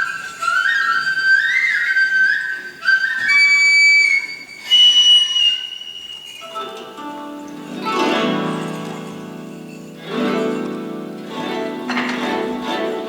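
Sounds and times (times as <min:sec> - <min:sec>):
flute playing slow melody: 0:00.0 - 0:07.5.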